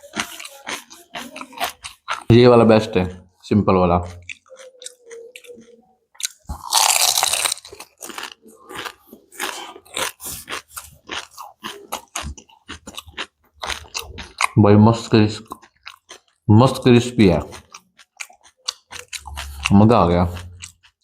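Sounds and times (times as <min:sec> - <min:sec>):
crunching crispy snack: 0:06.2 - 0:14.6.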